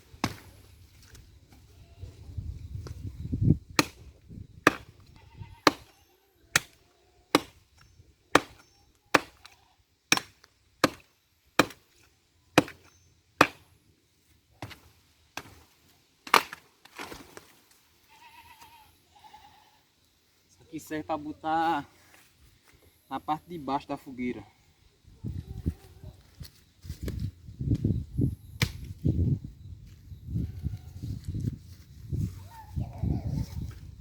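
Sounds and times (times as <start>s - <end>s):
axe chopping firewood: 0.2s - 0.5s, 3.8s - 13.8s, 14.6s - 17.3s, 28.6s - 28.9s.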